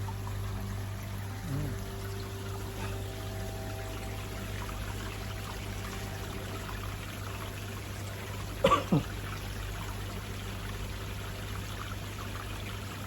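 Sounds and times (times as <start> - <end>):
water splashing and trickling: 0.0 - 13.0
brief voice-like sound: 1.4 - 1.8.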